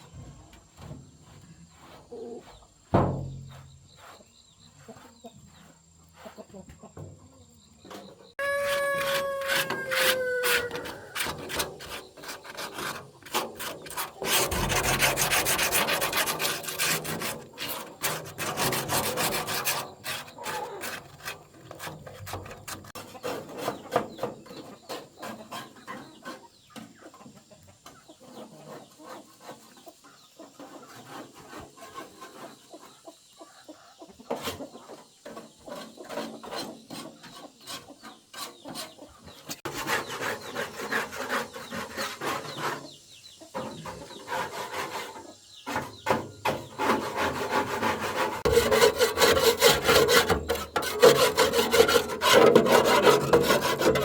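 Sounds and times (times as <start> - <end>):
rapid rasping scrapes: 1.2 - 2.8, 8.3 - 26.5, 30.5 - 32.7, 35.7 - 43.0, 43.6 - 45.9, 46.6 - 54.0
rooster crowing: 8.4 - 11.3.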